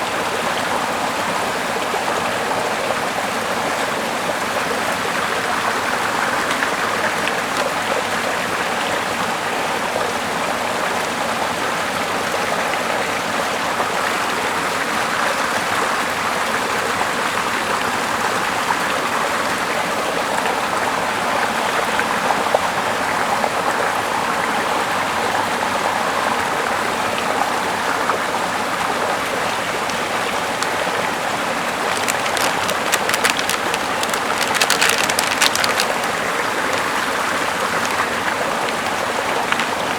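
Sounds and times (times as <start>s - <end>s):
river flowing over rocks: 27.9s - 39.9s
sharp crackles: 31.8s - 39.9s.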